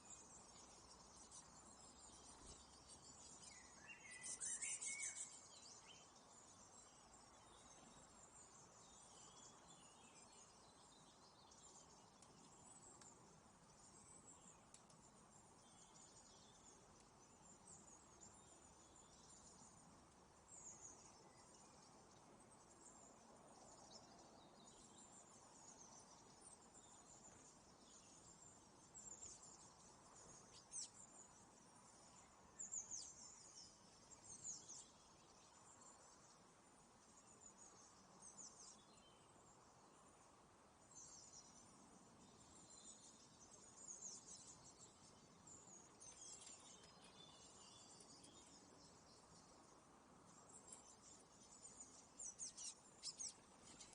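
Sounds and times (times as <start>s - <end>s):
faint small birds chirping: 0.0s - 53.9s.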